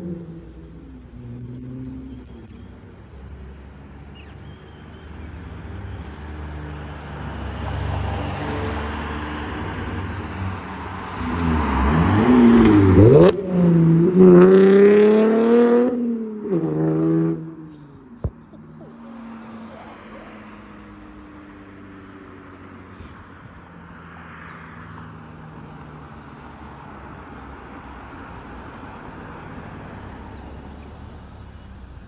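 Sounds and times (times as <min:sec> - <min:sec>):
car engine revving: 0:07.3 - 0:21.4.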